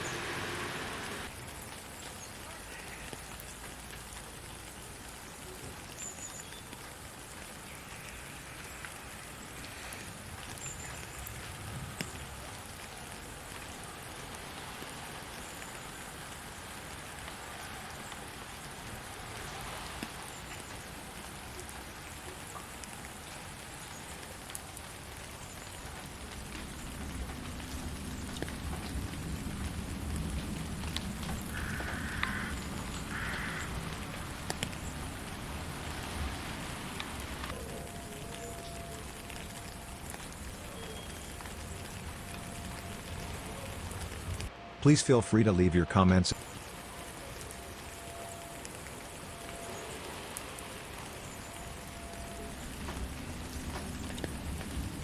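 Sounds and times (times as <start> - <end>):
steady rain falling: 0.0 - 55.0
single raindrop clicks: 30.1 - 34.9.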